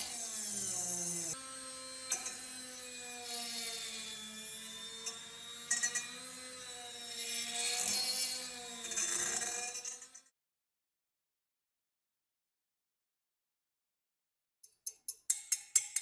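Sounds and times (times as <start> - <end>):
power tool motor whining: 0.0 - 10.3.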